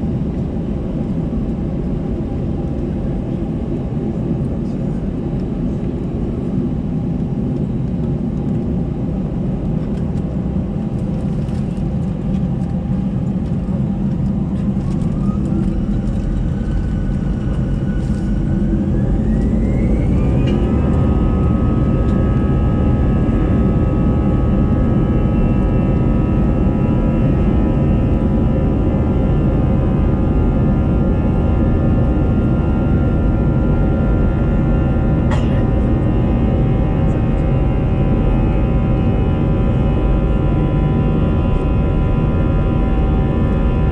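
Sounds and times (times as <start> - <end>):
engine whine: 0.0 - 43.9
heavy rumble: 0.0 - 43.9
jet engines spooling up: 12.6 - 28.4.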